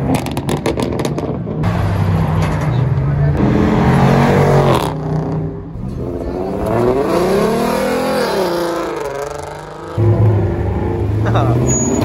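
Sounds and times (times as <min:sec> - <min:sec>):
car engine revving: 0:03.2 - 0:12.0.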